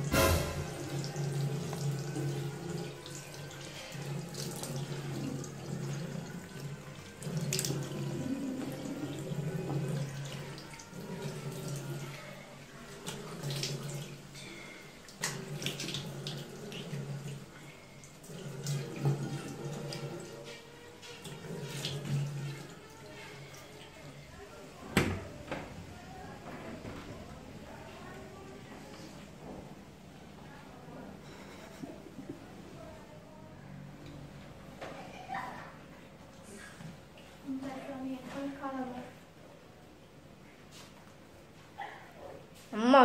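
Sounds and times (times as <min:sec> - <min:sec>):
tap running into basin: 0:00.0 - 0:12.2, 0:15.1 - 0:22.8.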